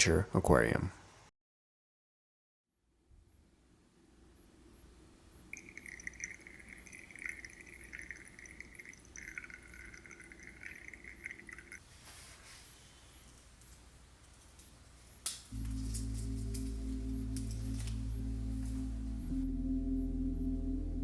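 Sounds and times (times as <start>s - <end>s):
water trickling into aquarium: 5.3s - 11.8s.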